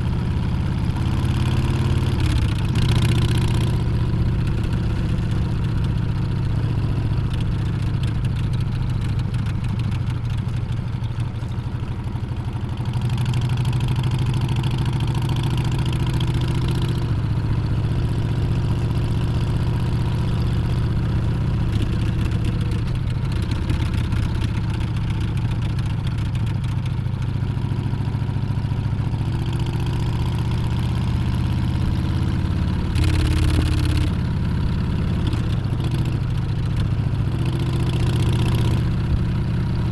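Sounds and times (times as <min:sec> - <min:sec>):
motorcycle engine revving: 0:00.8 - 0:05.5, 0:29.4 - 0:39.8.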